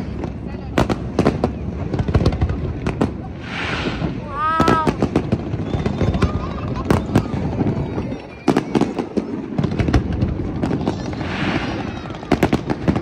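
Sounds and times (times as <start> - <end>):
fireworks bangs: 0.0 - 13.0
firework hiss: 3.2 - 6.4, 10.1 - 13.0.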